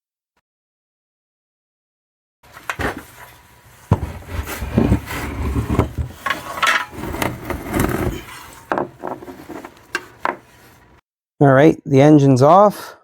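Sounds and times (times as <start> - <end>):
scraping on a shelf: 3.9 - 11.0.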